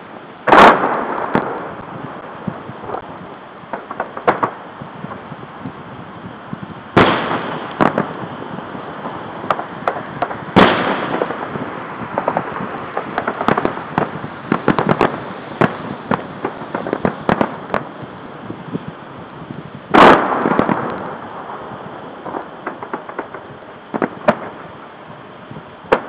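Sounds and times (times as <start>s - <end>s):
firework pops and crackles: 0.0s - 6.0s, 6.6s - 26.0s
firework shell bursts: 3.7s - 5.2s, 7.0s - 18.0s.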